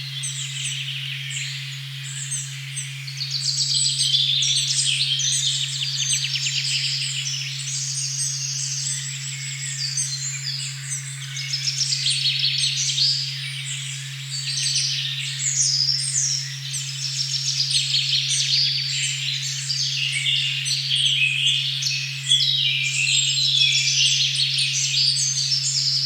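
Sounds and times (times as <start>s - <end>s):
steady low sine tone: 0.0s - 26.0s
birds chirping and trilling: 14.3s - 26.0s.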